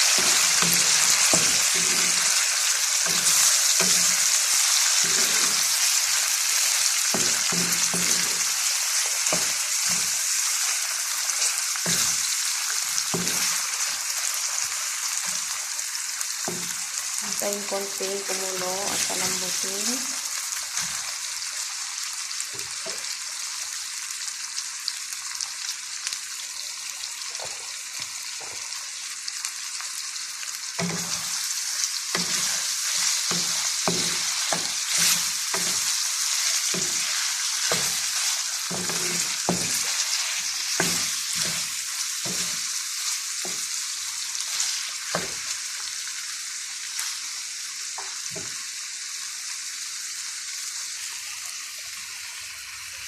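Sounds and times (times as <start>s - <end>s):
utensil scraping pan: 0.0s - 6.0s, 32.1s - 42.7s
chicken sizzling in hot oil: 0.0s - 53.0s.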